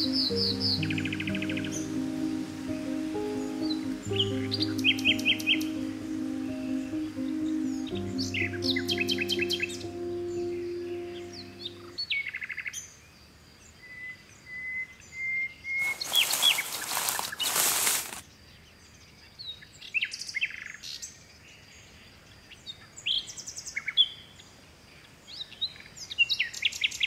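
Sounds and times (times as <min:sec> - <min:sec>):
held music chord: 0:00.0 - 0:12.0
birds chirping: 0:15.8 - 0:18.2.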